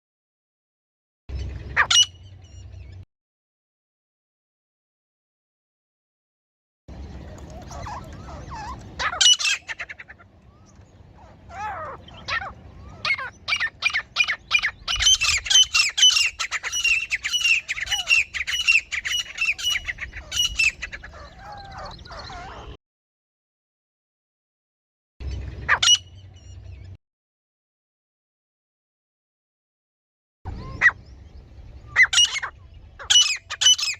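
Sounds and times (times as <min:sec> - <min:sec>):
francolin calling: 0:07.1 - 0:22.8.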